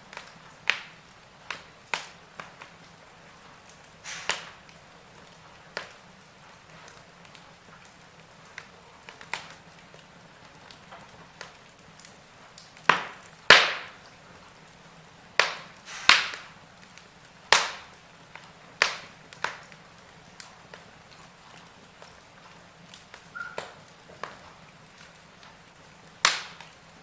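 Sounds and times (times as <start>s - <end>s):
faint steady hiss: 0.0s - 27.0s
wood fire crackling: 0.0s - 27.0s
loud sharp pops: 0.2s - 2.7s, 4.0s - 4.6s, 12.8s - 14.0s, 15.4s - 16.6s, 17.5s - 19.7s, 26.2s - 26.8s.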